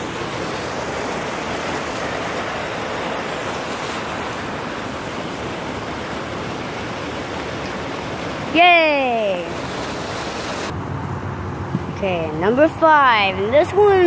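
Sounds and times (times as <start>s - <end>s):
water pouring down waterfall: 0.0s - 10.7s.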